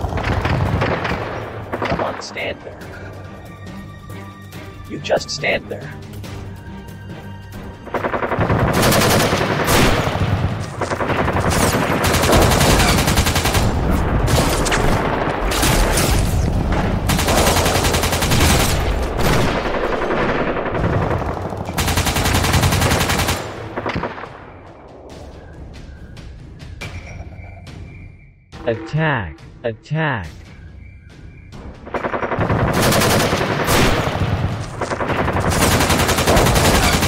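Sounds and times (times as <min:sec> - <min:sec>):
machine-gun fire: 0:07.9 - 0:16.1, 0:17.0 - 0:24.1, 0:31.9 - 0:37.0.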